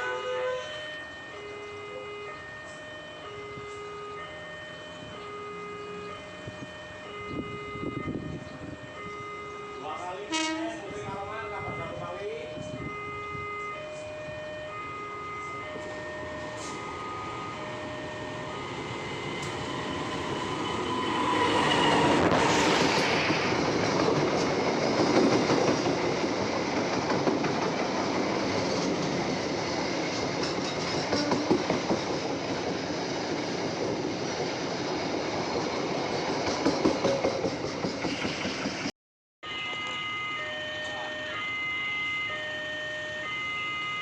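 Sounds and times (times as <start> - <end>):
crossing warning alarm: 0.0 - 33.0, 39.4 - 44.0
train wheels clattering: 22.6 - 34.6, 35.4 - 38.9.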